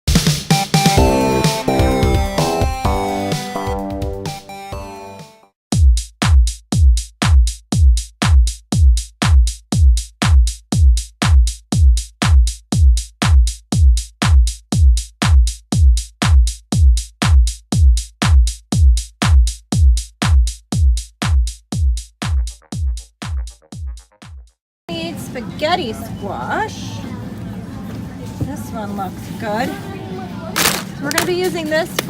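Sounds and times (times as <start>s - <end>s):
electronic kick drum beat: 0.1s - 5.0s, 5.7s - 24.6s.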